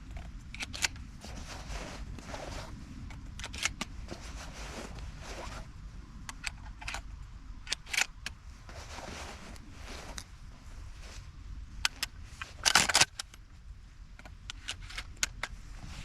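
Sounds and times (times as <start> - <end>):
rustling: 0.1 - 5.8, 7.9 - 16.0
shotgun metallic clicks: 0.6 - 1.0, 3.4 - 3.9, 6.3 - 8.4, 11.8 - 13.4.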